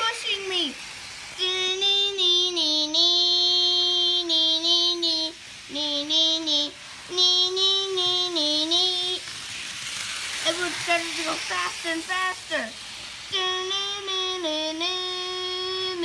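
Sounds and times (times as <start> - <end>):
child singing: 1.4 - 9.4, 10.4 - 16.0.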